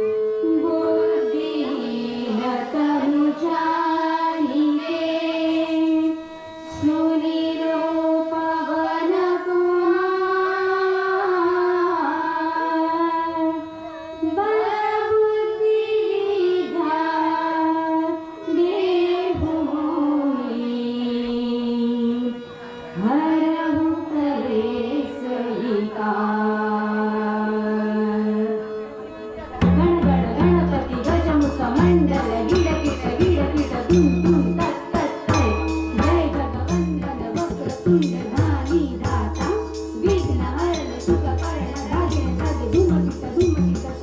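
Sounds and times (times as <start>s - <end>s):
held accompanying notes: 0.0s - 11.2s, 28.2s - 44.0s
woman singing devotional song: 0.0s - 44.0s
percussion beat: 29.6s - 44.0s.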